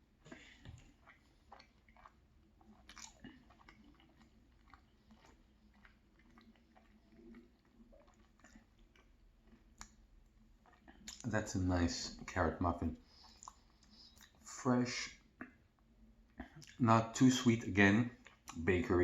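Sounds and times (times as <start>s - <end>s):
person chewing soft food: 0.0s - 16.8s, 18.1s - 19.0s.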